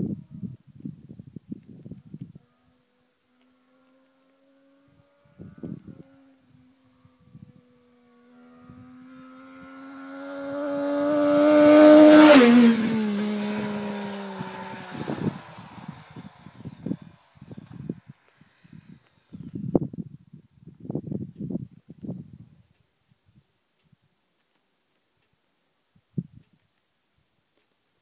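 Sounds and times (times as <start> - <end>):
motorcycle engine passing by: 2.0 - 19.8.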